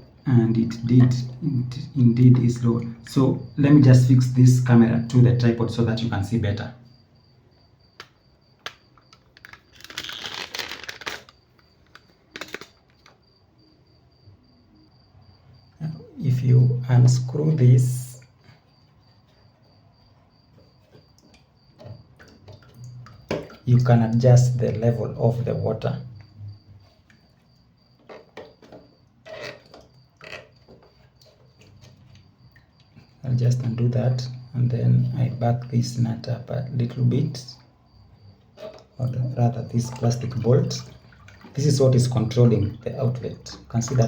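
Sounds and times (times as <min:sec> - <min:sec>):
plastic clicks: 0:08.0 - 0:13.2
plastic parts knocking and scraping: 0:08.0 - 0:13.2, 0:28.0 - 0:32.2
plastic rubbing and scraping: 0:08.7 - 0:13.2.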